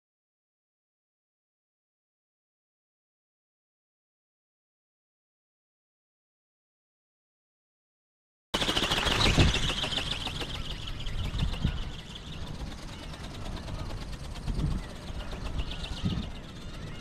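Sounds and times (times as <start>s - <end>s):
flapping wings: 8.6s - 17.0s
gulls calling: 8.6s - 17.0s
wind buffeting microphone: 8.7s - 17.0s.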